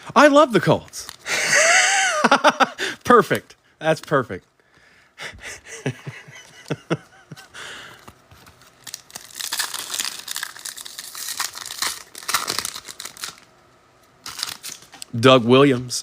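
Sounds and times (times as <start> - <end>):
foil wrapper tearing and crinkling: 8.3 - 13.5, 14.2 - 15.1.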